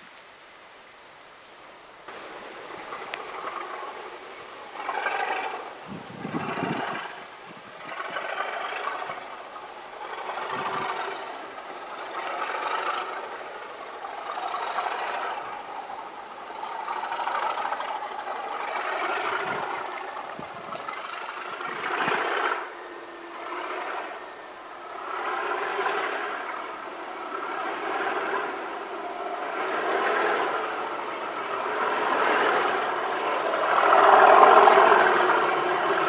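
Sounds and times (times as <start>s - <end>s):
diesel locomotive engine: 2.1s - 36.0s.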